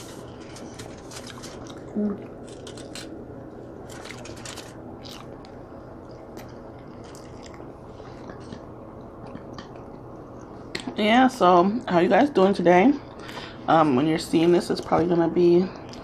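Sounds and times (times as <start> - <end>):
wet chewing: 0.6 - 3.2, 3.9 - 10.9.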